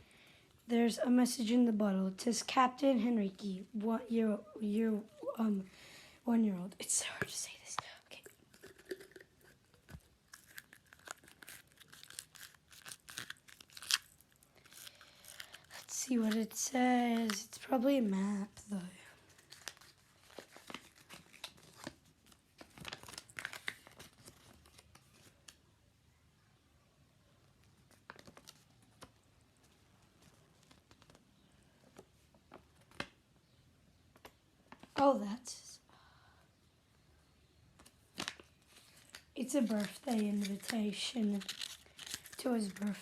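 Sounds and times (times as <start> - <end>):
paper crinkling and rustling: 8.6 - 17.6, 19.2 - 25.6, 27.6 - 31.3, 37.8 - 43.0
paper rustling: 38.2 - 43.0.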